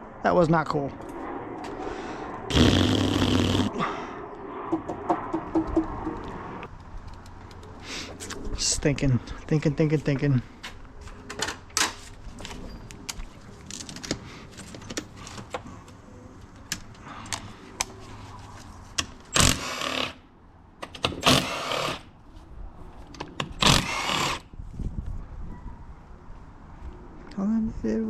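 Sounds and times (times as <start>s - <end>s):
loud noisy bursts: 2.5s - 3.8s.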